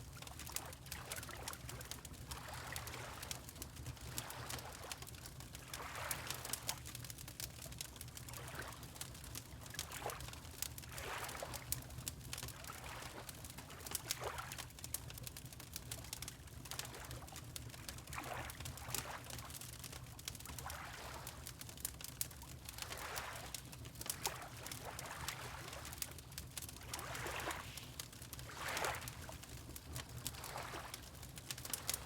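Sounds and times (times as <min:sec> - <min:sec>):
wood fire crackling: 0:00.2 - 0:08.3, 0:09.0 - 0:11.0, 0:14.8 - 0:18.0, 0:21.2 - 0:32.0
water lapping: 0:22.9 - 0:23.5, 0:24.1 - 0:26.0, 0:26.8 - 0:29.4, 0:30.0 - 0:32.0.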